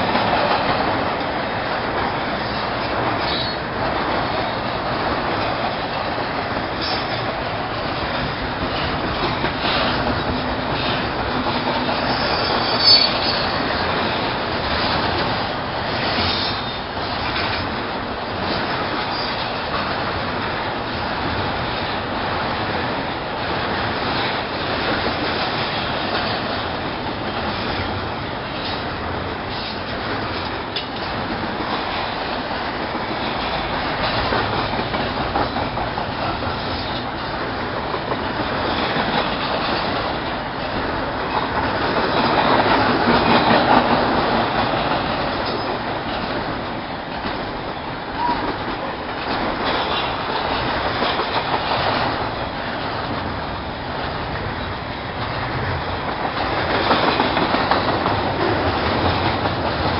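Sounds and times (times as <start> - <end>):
train wheels rumbling and clattering: 0.0 - 59.9
faint wheel squeal: 12.1 - 13.5.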